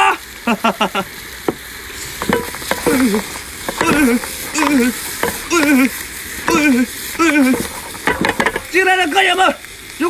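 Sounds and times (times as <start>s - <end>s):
seafood sizzling in a wok: 0.0s - 10.0s
spatula clicking against pan: 2.2s - 8.9s.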